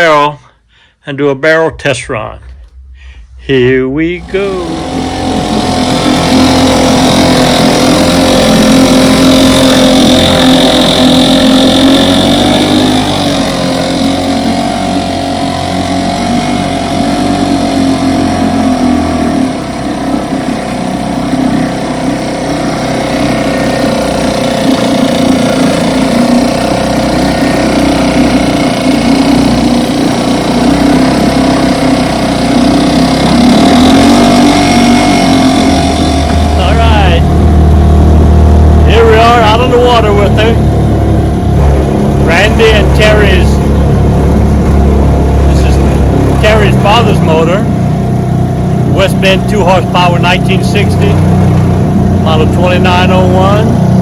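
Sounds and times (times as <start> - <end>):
outboard motor running: 0.0 - 0.3, 2.5 - 54.0.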